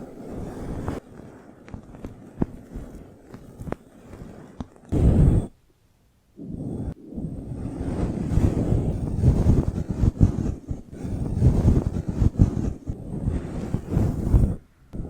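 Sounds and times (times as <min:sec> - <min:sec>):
rubbing on microphone: 0:07.8 - 0:14.6.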